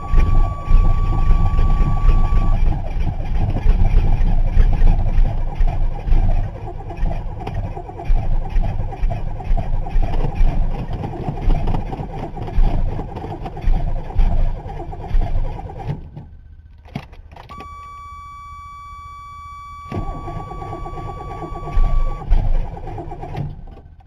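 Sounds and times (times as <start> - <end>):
click: 0.0 - 2.6, 16.8 - 22.3
steady high beep: 0.0 - 2.6, 17.5 - 22.2
engine cranking on starter: 0.0 - 24.0.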